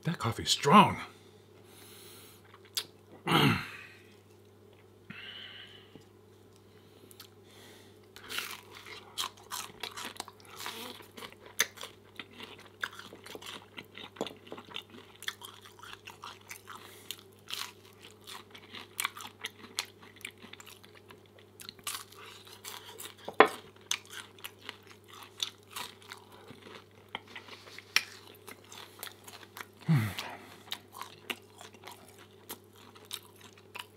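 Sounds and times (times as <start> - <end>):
chewing with wet mouth clicks: 2.4 - 2.9, 8.1 - 29.8, 30.6 - 33.9.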